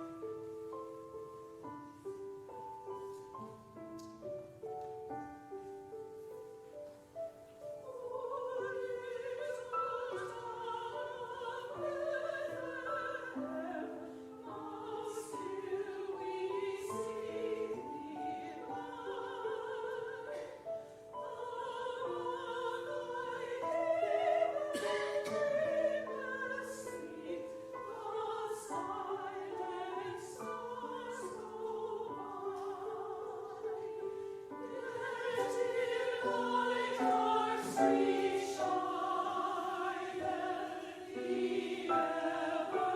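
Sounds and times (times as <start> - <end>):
choir singing: 7.5 - 42.9.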